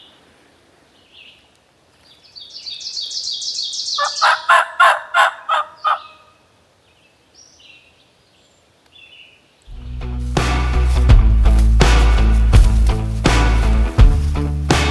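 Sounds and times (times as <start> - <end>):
faint small bird chirps: 0.9 - 4.5
wild turkey calls: 3.8 - 6.5.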